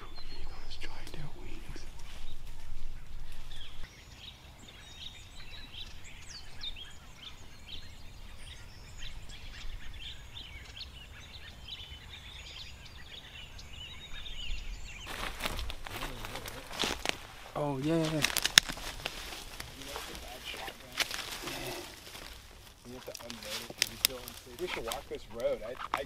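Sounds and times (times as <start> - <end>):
birds chirping: 0.0 - 26.0
low outdoor background: 0.0 - 26.0
dry twigs crackling and rustling: 0.3 - 4.0, 14.6 - 26.0.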